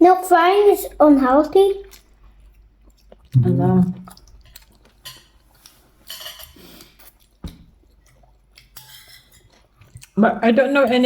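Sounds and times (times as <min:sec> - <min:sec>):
cutlery scraping on plates: 0:05.0 - 0:05.4, 0:06.0 - 0:07.2, 0:08.6 - 0:09.8.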